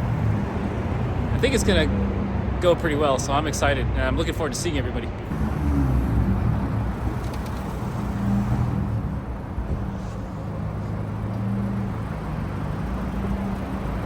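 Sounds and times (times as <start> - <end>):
car engine idling: 5.2 - 14.0.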